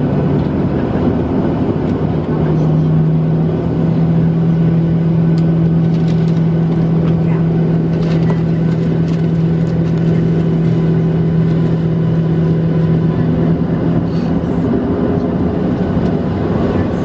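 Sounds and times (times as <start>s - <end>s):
airplane cabin engine hum: 0.0s - 17.0s.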